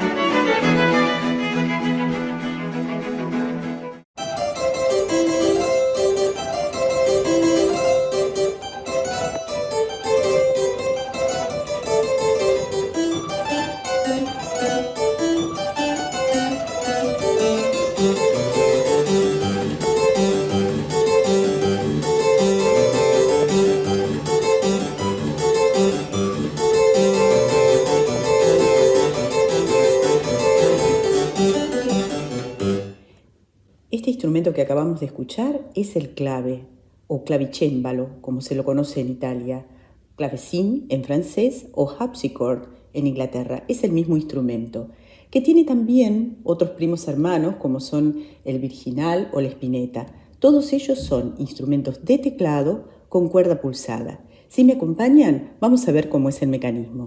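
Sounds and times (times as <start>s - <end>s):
harpsichord playing lively piece: 0.0s - 33.0s.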